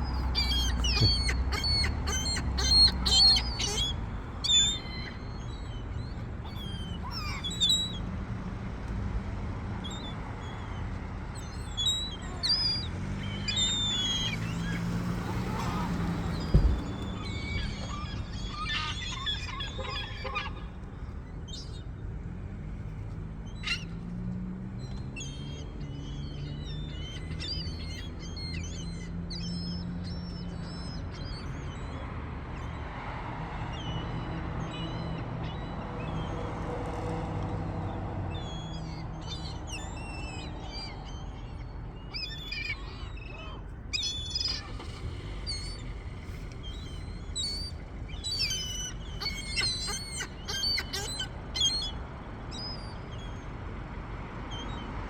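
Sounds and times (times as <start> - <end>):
gulls calling: 0.0 - 8.1, 9.8 - 21.8, 38.4 - 53.5
thump: 16.4 - 17.3.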